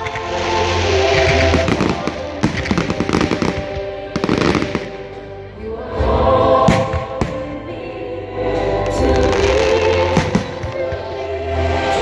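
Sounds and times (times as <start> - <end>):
fireworks crackling and banging: 0.0 - 5.0, 9.2 - 11.2
music: 0.0 - 12.0.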